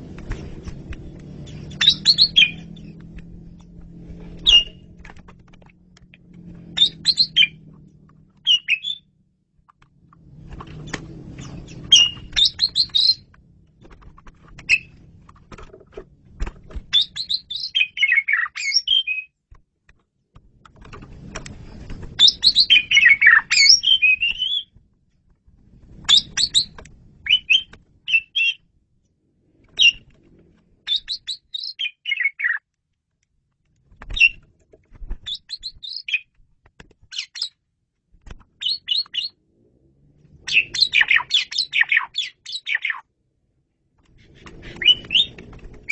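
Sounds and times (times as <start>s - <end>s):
bird whistling and chattering: 1.7s - 2.9s, 4.4s - 4.8s, 6.8s - 7.6s, 8.4s - 9.1s, 11.7s - 13.2s, 16.9s - 19.3s, 22.2s - 24.7s, 26.1s - 28.6s, 30.9s - 32.6s, 35.3s - 36.2s, 38.6s - 39.3s, 40.5s - 43.0s, 44.6s - 45.9s.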